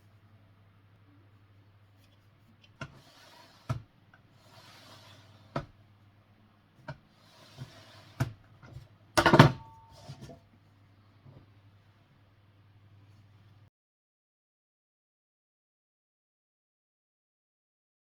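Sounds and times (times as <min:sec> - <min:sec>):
faint steady hum: 0:00.0 - 0:13.7
soft scraping: 0:02.0 - 0:05.7, 0:07.1 - 0:08.3.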